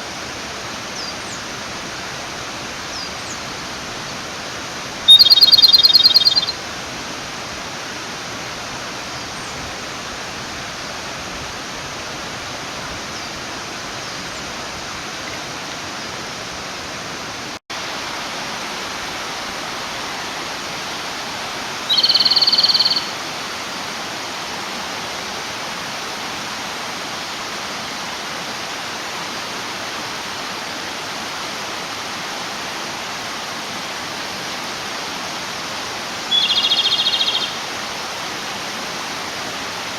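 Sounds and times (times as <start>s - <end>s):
mountain stream rushing: 0.0s - 39.9s
bird singing fast trill: 5.1s - 6.6s, 21.9s - 23.2s, 36.3s - 37.6s.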